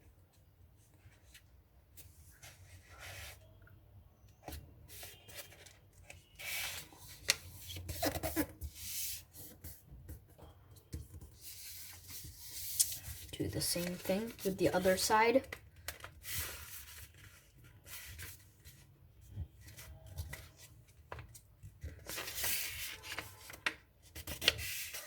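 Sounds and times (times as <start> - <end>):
paper being folded and creased: 4.9 - 9.8, 11.3 - 18.8, 19.5 - 25.0.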